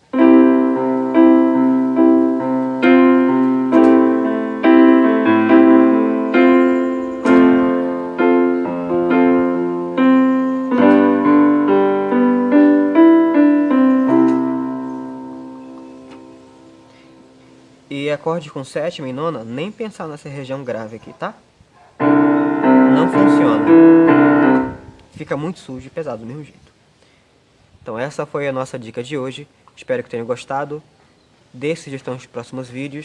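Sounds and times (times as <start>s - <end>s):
low piano bass notes: 0.0s - 17.8s, 22.0s - 25.0s
piano chords and arpeggios: 0.0s - 17.8s, 22.0s - 25.0s.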